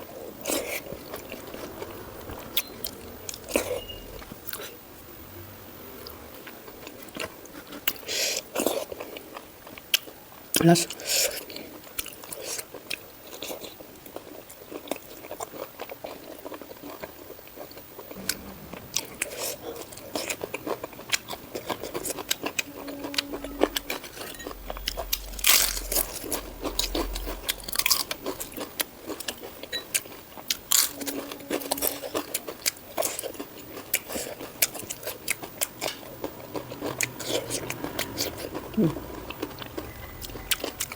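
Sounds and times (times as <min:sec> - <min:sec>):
person chewing: 0:00.0 - 0:04.8, 0:10.8 - 0:40.9.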